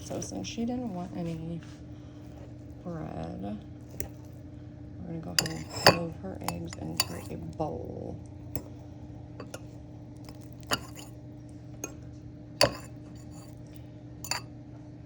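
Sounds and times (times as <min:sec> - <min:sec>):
utensil clinking against bowls: 0:05.4 - 0:07.6, 0:08.5 - 0:08.7, 0:09.4 - 0:11.2, 0:12.6 - 0:14.5.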